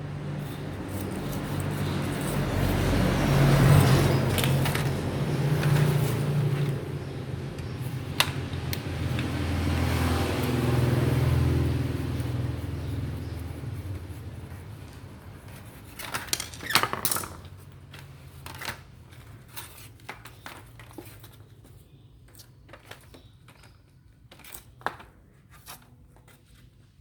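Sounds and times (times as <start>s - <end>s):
small parts clicking and tapping: 7.5s - 10.9s, 15.5s - 26.3s.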